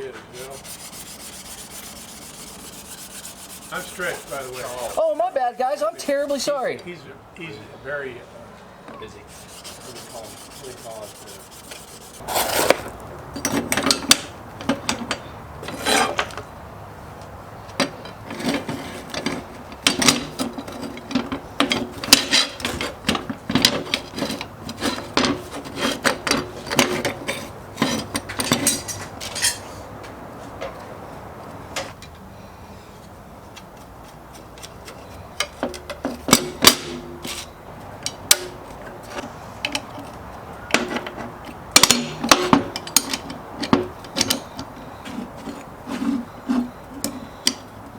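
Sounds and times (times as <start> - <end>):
scraping on metal tool: 0.0 - 5.3, 9.2 - 12.9, 15.1 - 16.3, 23.7 - 29.9, 44.2 - 47.6.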